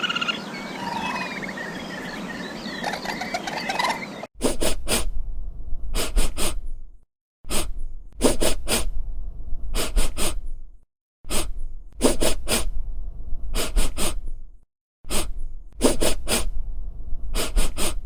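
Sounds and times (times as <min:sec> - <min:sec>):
animal breathy bursts: 0:04.4 - 0:05.1, 0:05.9 - 0:06.7, 0:07.5 - 0:09.0, 0:09.7 - 0:10.6, 0:11.3 - 0:12.8, 0:13.5 - 0:14.4, 0:15.1 - 0:16.6, 0:17.3 - 0:18.0.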